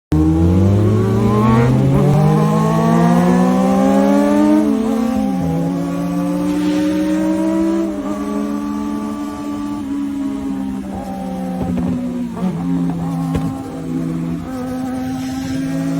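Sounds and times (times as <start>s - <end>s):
motorcycle engine accelerating: 0.1s - 15.9s.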